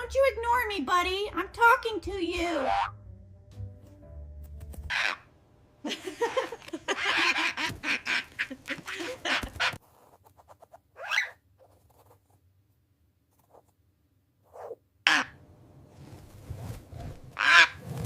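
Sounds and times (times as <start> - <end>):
parrot squawking: 2.6 - 3.0, 4.9 - 5.3, 7.0 - 9.8, 11.0 - 11.4, 15.1 - 15.4, 17.4 - 17.8.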